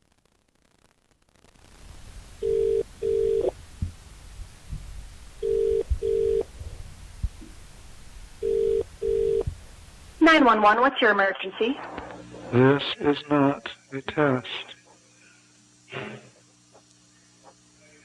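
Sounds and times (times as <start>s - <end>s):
low hiss: 0.0s - 18.0s
telephone ringback tone: 2.4s - 3.5s, 5.4s - 6.5s, 8.4s - 9.4s
faint low thumps: 3.6s - 8.4s, 9.4s - 10.2s.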